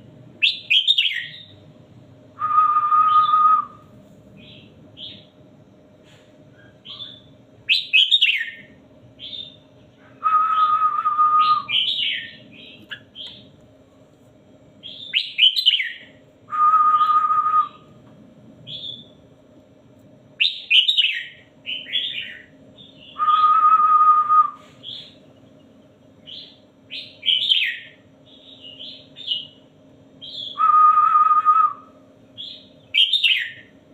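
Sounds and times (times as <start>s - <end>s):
faint low hum: 0.0s - 33.9s
bulbul singing whistled phrases: 0.4s - 1.5s, 2.4s - 3.8s, 6.6s - 9.6s, 10.2s - 13.4s, 14.8s - 17.9s, 18.7s - 19.2s, 20.4s - 25.2s, 26.3s - 29.6s, 30.2s - 33.7s.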